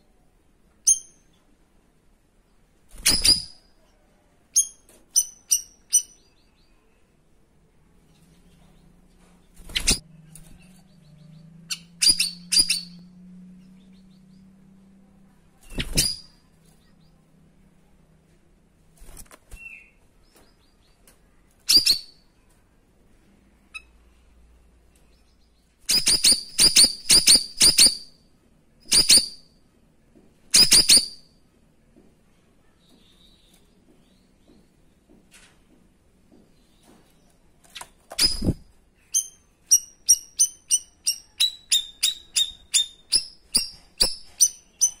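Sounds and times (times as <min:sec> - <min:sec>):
songbird high-pitched calls: 0:04.6 - 0:07.0, 0:09.7 - 0:14.5, 0:38.2 - 0:45.0.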